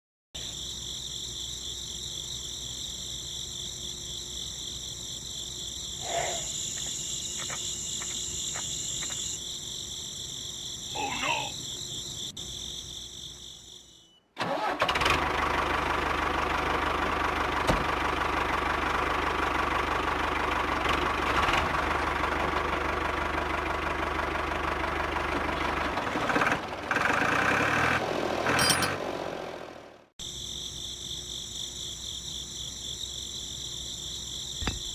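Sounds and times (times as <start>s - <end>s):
crickets chirring: 0.4s - 14.3s, 30.2s - 34.9s.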